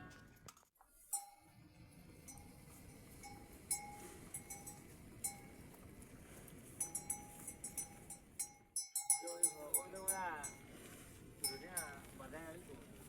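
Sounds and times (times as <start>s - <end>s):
small metal bell clanking: 1.1s - 5.8s, 6.8s - 10.7s, 11.4s - 12.2s.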